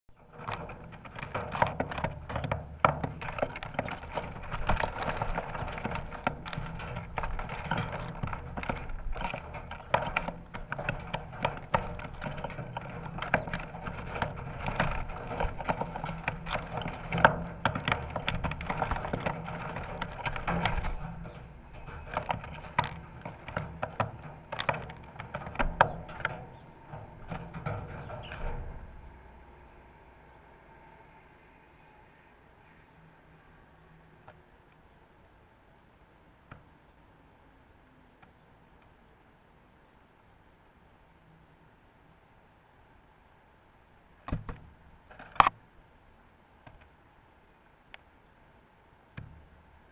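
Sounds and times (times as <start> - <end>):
sparrows pecking at bird feeder: 0.1 - 30.1.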